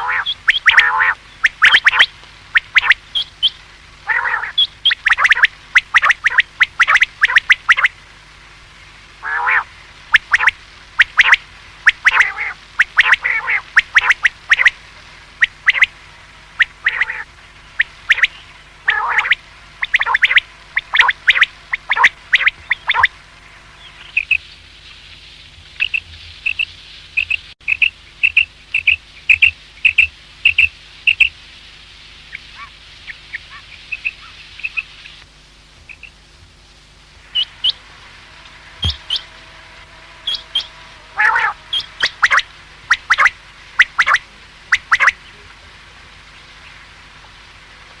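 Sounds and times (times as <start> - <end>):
quail calling: 0.0 - 8.0, 9.2 - 23.2, 32.3 - 34.9, 38.4 - 45.2.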